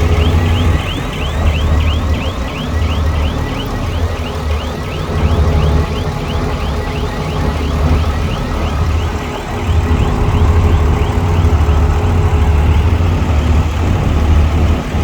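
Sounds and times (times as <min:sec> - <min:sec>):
heavy diesel machinery rumbling: 0:00.0 - 0:15.0.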